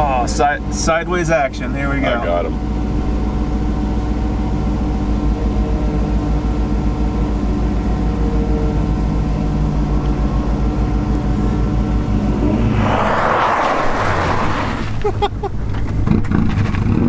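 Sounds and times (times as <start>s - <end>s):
car engine running: 0.0s - 17.0s
low rapid throbbing: 0.4s - 13.2s.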